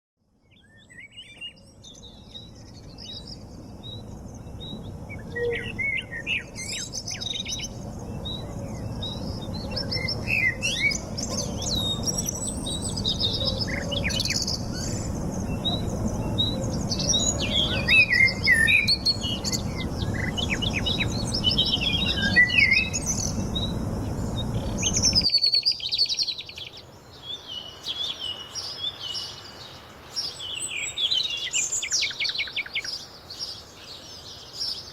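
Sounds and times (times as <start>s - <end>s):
birds chirping and singing: 0.5s - 34.9s
low background rumble: 2.2s - 25.3s.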